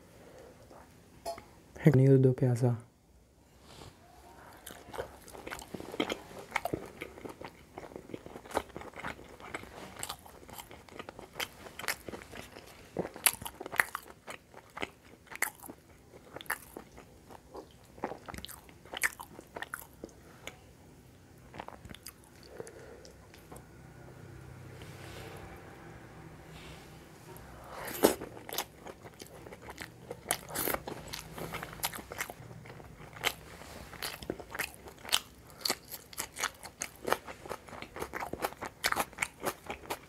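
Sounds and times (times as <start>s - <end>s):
person chewing food: 4.5s - 20.6s, 21.5s - 25.0s, 27.3s - 40.0s.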